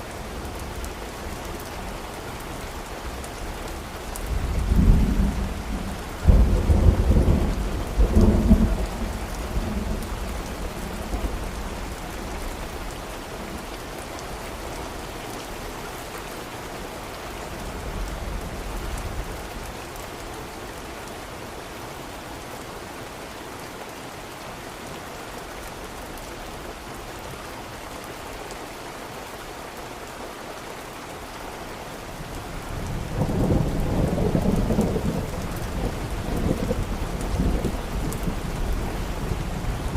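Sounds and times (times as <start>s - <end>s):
steady rain: 0.0s - 39.9s
thunder rumbling: 4.4s - 11.9s, 32.8s - 39.9s.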